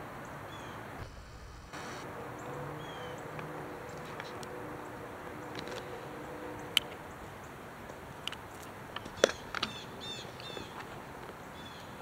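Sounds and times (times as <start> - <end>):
songbird chirping: 0.2 - 12.0
low hum: 1.0 - 6.8.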